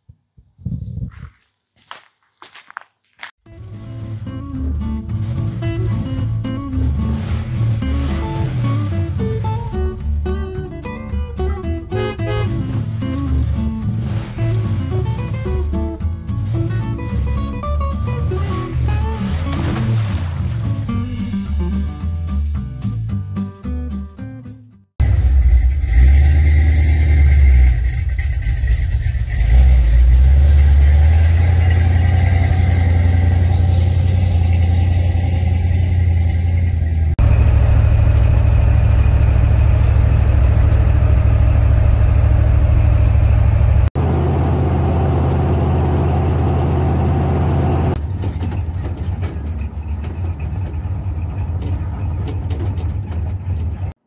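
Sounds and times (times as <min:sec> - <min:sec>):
road noise: 0:01.1 - 0:22.5, 0:25.0 - 0:54.0
truck engine droning: 0:03.5 - 0:23.2, 0:25.0 - 0:54.0.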